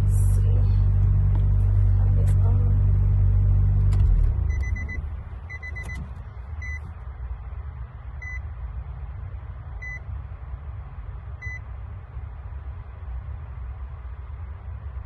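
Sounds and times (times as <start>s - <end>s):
car engine idling: 0.0s - 15.0s
electronic beeps: 4.4s - 6.0s.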